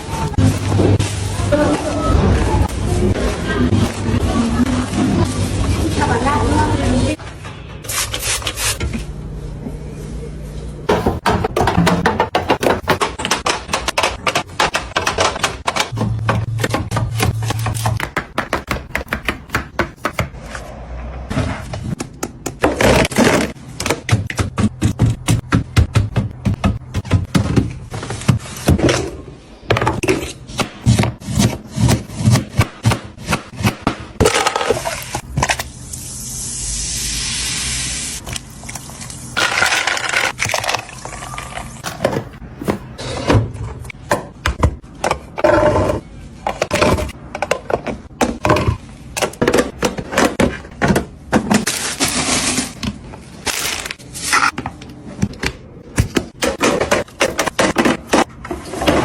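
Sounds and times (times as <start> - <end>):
containers and packaging clattering: 10.9 - 19.4, 39.4 - 59.0.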